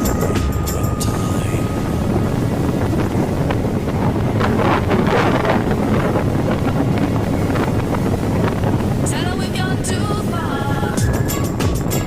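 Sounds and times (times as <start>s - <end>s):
motorcycle riding rumble: 0.0s - 12.0s
wind buffeting microphone: 0.0s - 12.0s.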